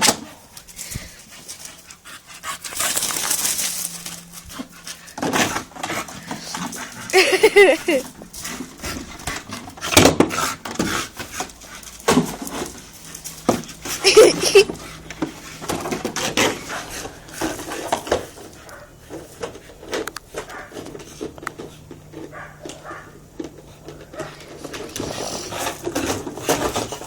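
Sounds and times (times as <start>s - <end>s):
dog vocal sound: 7.1s - 8.1s, 14.0s - 14.8s.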